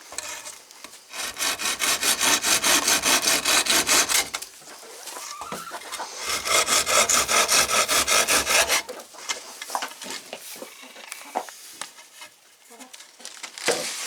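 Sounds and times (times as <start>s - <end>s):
hand saw cutting wood: 0.0s - 4.5s, 5.8s - 9.0s.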